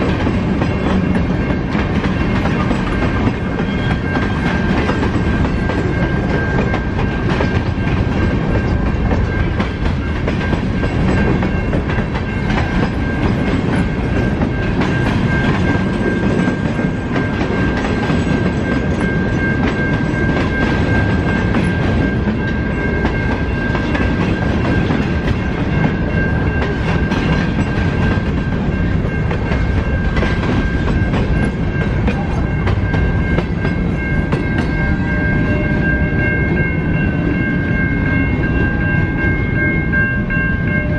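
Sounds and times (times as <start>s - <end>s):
train wheels clacking over rail joints: 0.0s - 34.8s
steady high-pitched tone: 0.0s - 40.9s.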